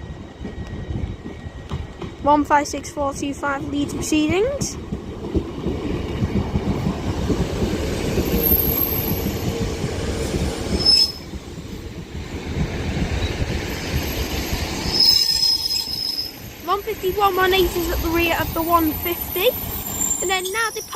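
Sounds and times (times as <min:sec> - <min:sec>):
train wheels and engines rumbling: 0:00.0 - 0:20.9
high squeal: 0:14.2 - 0:16.5, 0:18.6 - 0:20.9.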